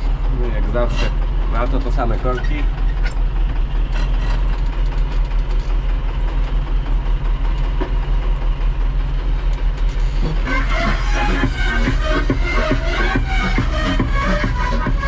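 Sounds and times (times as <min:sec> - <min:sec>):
vehicle engine droning: 0:00.0 - 0:15.0
music: 0:10.4 - 0:15.0.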